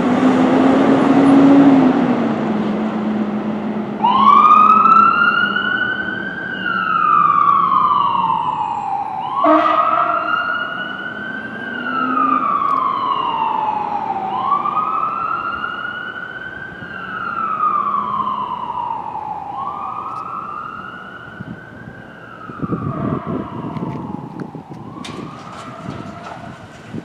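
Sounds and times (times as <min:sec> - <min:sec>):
fire truck siren wailing: 0:00.0 - 0:27.0.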